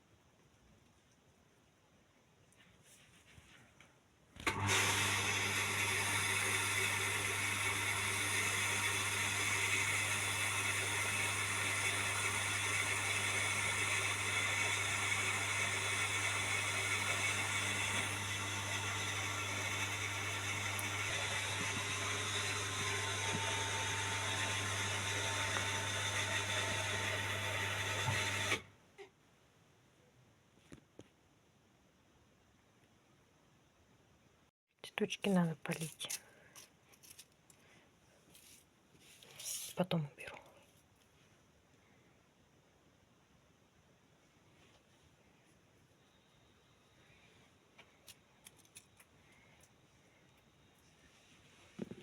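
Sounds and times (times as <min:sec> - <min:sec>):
electric motor humming and whining: 0:04.5 - 0:28.7.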